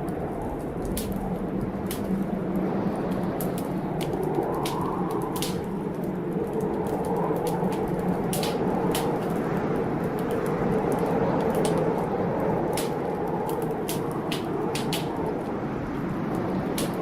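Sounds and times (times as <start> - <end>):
wood fire crackling: 0.0 - 17.0
sharp pops of fire: 3.4 - 5.8, 6.9 - 9.5, 12.7 - 15.5, 16.7 - 17.0.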